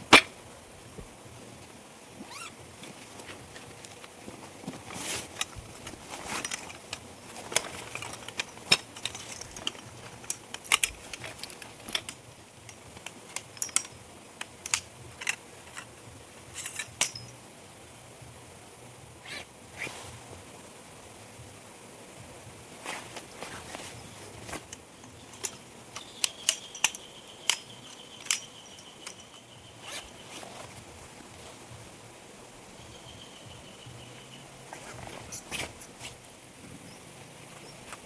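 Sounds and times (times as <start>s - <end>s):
small objects clicking and clinking: 6.1s - 15.9s, 24.5s - 30.1s.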